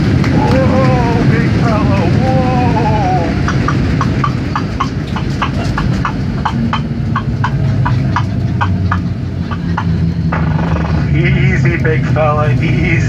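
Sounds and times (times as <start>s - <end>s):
airplane cabin rumble: 0.0s - 13.0s
sharp regular clicking: 3.4s - 11.2s.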